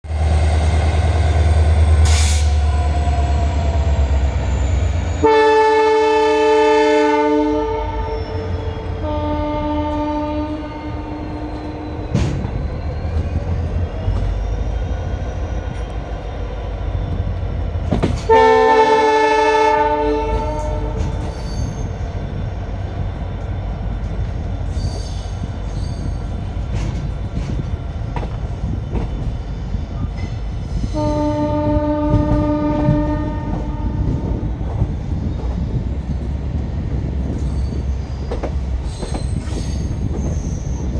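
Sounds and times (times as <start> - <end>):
moving train rumbling: 0.0 - 40.9
train horn blasts: 5.1 - 12.1, 18.3 - 21.5, 30.8 - 34.4.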